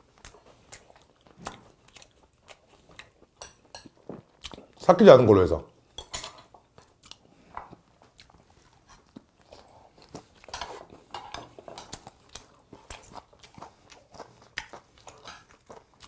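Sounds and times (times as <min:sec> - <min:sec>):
chewing with soft crunches: 0:00.0 - 0:04.9, 0:05.8 - 0:16.0.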